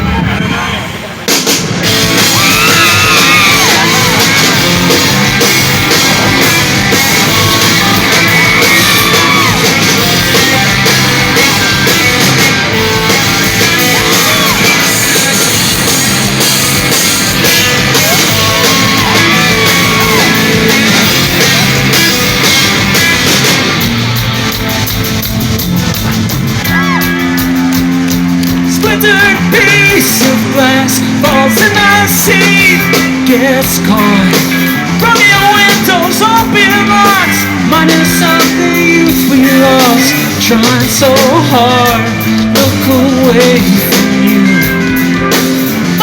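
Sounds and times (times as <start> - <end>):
rock band playing live: 0.0 - 46.0
voices yelling: 2.0 - 23.8.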